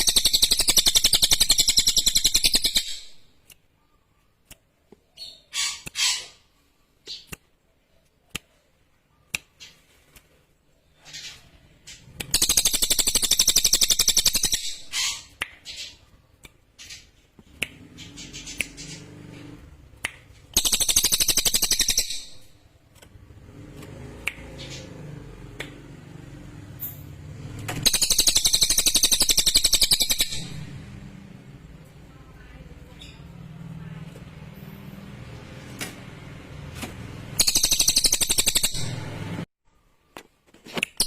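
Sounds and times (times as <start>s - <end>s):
bird rapid high trilling: 20.5s - 22.6s, 27.8s - 30.7s, 37.3s - 39.1s.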